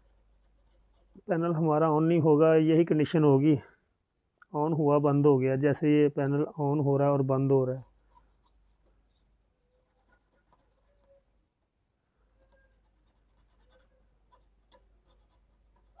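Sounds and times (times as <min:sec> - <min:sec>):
faint light scratching: 0:12.3 - 0:16.0.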